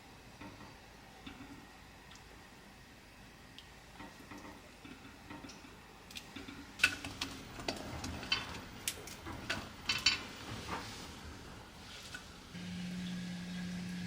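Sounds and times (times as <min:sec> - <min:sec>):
steady low hum: 0:11.3 - 0:14.0.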